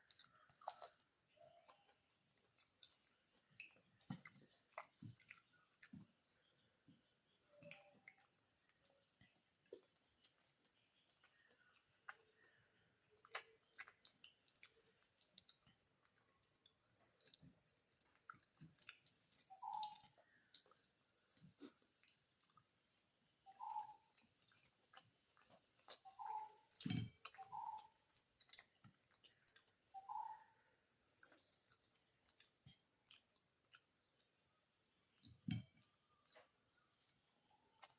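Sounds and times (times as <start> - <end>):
wet chewing: 0.0 - 37.9.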